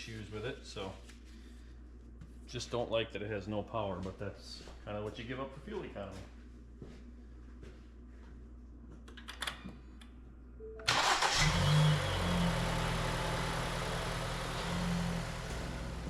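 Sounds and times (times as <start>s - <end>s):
car engine cranking and idling: 10.9s - 16.0s.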